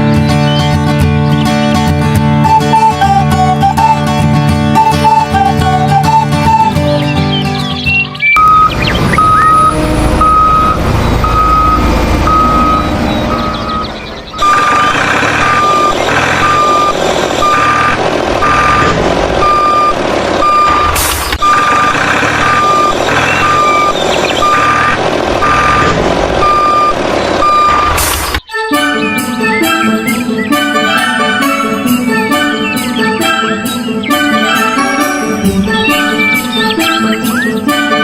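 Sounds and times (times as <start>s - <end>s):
vehicle engine running: 0.0s - 28.5s
reversing alarm beeping: 4.8s - 7.0s, 8.4s - 38.0s.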